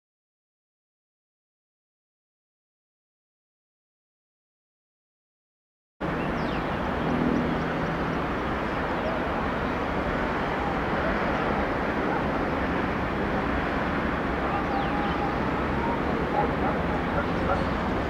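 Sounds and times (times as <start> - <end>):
faint distant voices: 7.4 - 18.0.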